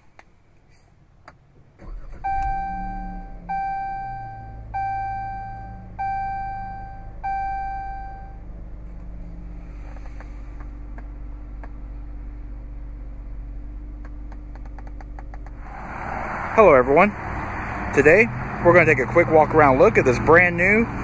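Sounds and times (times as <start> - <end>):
car engine starting and idling: 0.0 - 21.0
dashboard warning chime: 2.2 - 8.4.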